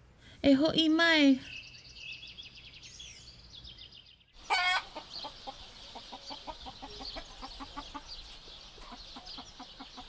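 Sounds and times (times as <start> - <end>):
chicken squawk: 4.4 - 8.1
chicken clucking: 4.4 - 10.0.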